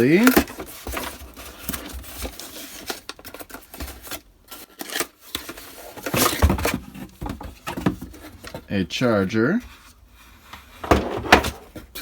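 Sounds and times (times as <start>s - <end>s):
packaging rustling and scraping: 0.0s - 12.0s.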